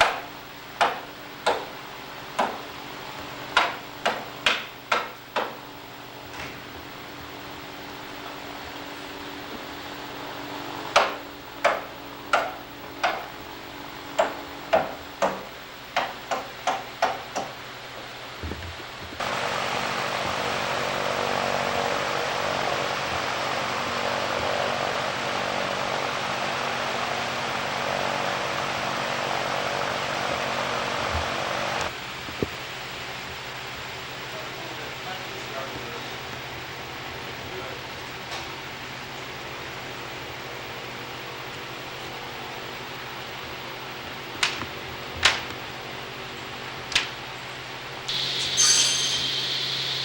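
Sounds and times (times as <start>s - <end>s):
sharp ringing knocks: 48.4s - 49.5s.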